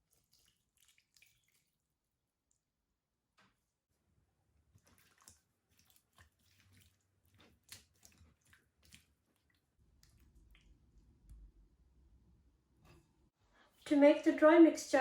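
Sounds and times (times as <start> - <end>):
wet squelching of meat in marinade: 0.0 - 2.7, 4.6 - 11.3.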